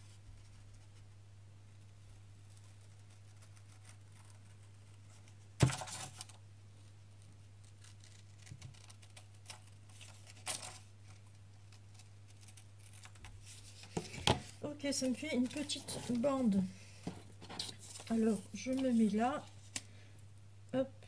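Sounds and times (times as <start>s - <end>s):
scissors cutting paper: 7.7s - 10.8s, 11.9s - 13.3s.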